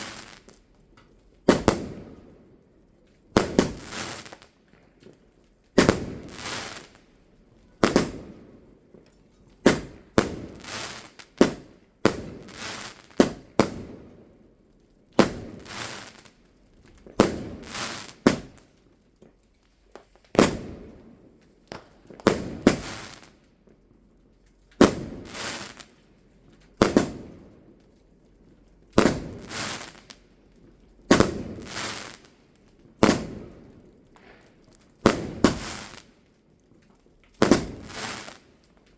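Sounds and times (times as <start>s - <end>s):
fireworks bangs echoing: 0.0s - 0.6s, 1.4s - 2.3s, 3.3s - 4.5s, 5.8s - 7.0s, 7.7s - 9.0s, 9.6s - 14.2s, 15.2s - 16.4s, 17.0s - 18.7s, 20.3s - 21.1s, 21.7s - 23.3s, 24.8s - 25.9s, 26.8s - 27.5s, 29.0s - 30.2s, 31.1s - 32.3s, 32.9s - 36.1s, 37.4s - 38.5s.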